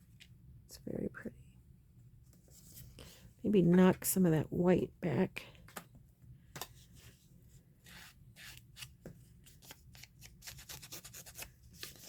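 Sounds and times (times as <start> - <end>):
paper rustling and scratching: 7.8 - 12.0.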